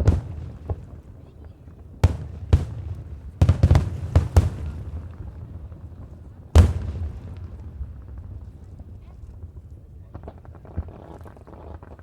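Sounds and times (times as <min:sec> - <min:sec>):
firework shells bursting: 0:02.0 - 0:08.3.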